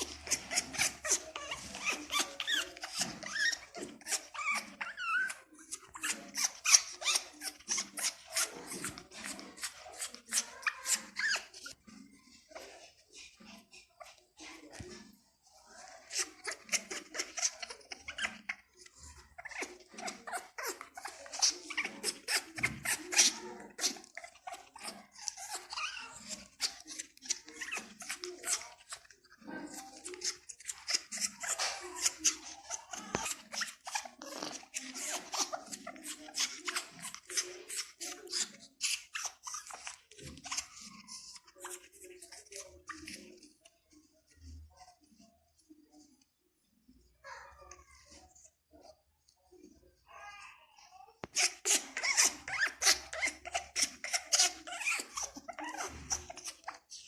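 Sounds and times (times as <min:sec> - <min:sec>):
parrot chattering: 0:00.0 - 0:13.2, 0:51.3 - 0:57.0.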